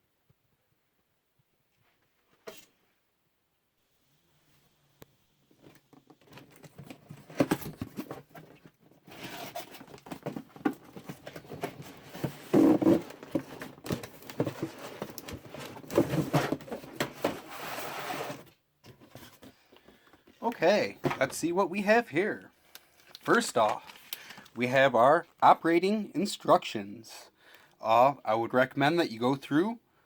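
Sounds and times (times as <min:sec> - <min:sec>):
cardboard scraping and rustling: 0:05.7 - 0:19.6.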